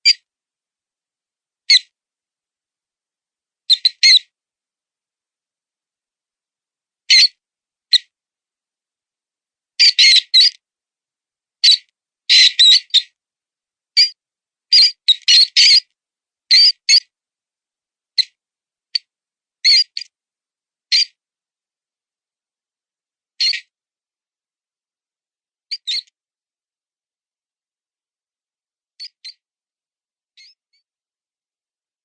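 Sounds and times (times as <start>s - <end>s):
mouse squeaking: 3.7s - 4.2s, 9.8s - 10.6s, 11.6s - 13.1s, 14.0s - 15.9s, 16.5s - 17.1s, 19.0s - 20.1s, 20.9s - 21.2s, 23.4s - 23.7s, 25.7s - 26.1s, 29.0s - 29.4s, 30.4s - 30.6s.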